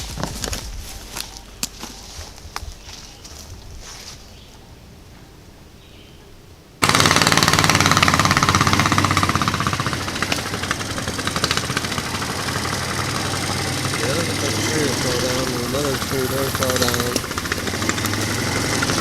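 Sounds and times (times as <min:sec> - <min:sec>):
small engine pulsing exhaust: 0:06.8 - 0:19.0.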